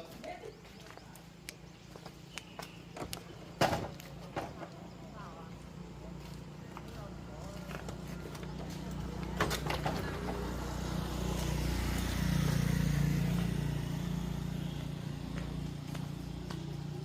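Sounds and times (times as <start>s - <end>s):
vehicle engine passing by: 4.0s - 17.0s.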